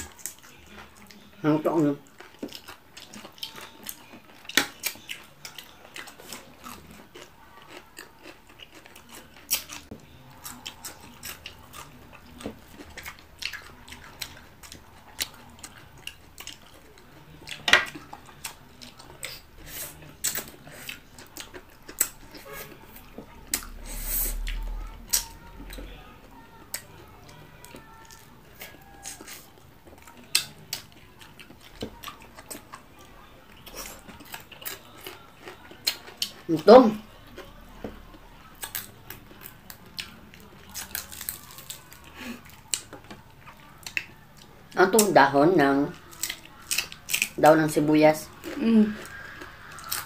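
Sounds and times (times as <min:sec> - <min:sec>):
wet chewing and lip smacks: 0:02.0 - 0:22.4, 0:26.5 - 0:36.5
crunching of crispy food: 0:02.0 - 0:45.1, 0:45.9 - 0:47.4, 0:48.3 - 0:50.0.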